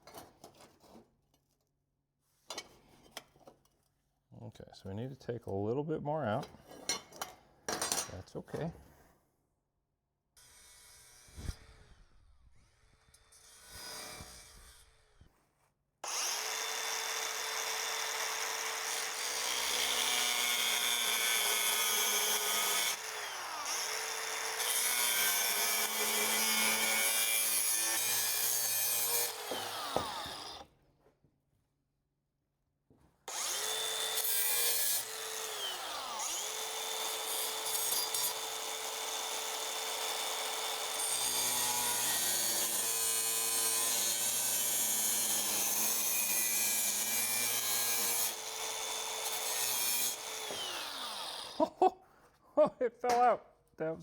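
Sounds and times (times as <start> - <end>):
electric grinder grinding steel: 16.0 - 30.6, 33.3 - 51.7.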